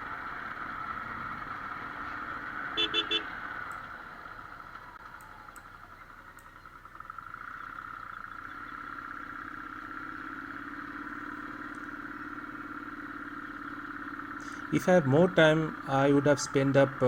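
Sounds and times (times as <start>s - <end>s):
low steady engine note: 0.0s - 17.0s
motorcycle engine running: 0.0s - 17.0s.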